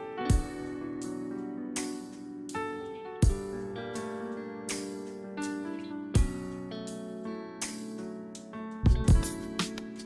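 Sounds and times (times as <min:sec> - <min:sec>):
light guitar and keyboard music: 0:00.0 - 0:10.0.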